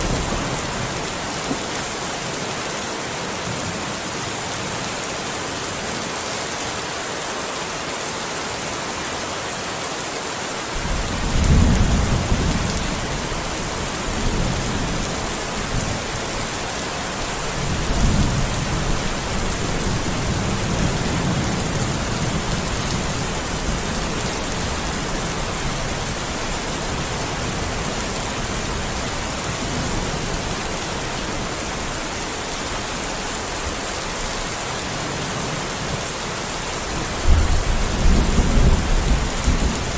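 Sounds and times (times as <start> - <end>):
heavy rain hissing: 0.0 - 39.9
deep rumble of thunder: 10.8 - 16.0, 37.2 - 39.9.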